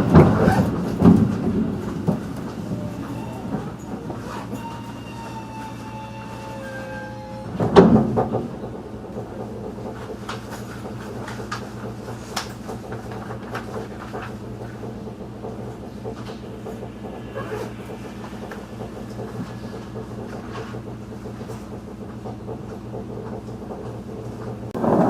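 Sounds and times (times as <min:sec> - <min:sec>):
electric train hum: 0:00.0 - 0:25.0
sliding train door thump: 0:07.5 - 0:08.6.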